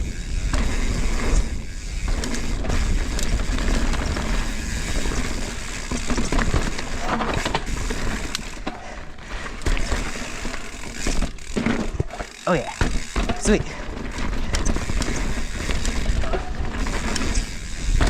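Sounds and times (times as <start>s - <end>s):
wind rumbling on microphone: 0.0s - 8.1s
bike knocking and rattling: 0.0s - 18.0s
bike tyres rolling on dirt: 0.0s - 18.0s.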